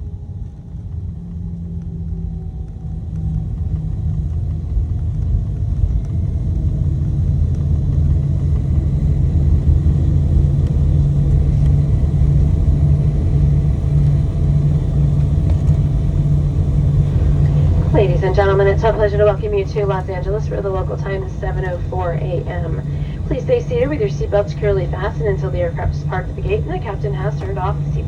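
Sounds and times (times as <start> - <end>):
airplane cabin engine rumble: 0.0 - 28.0.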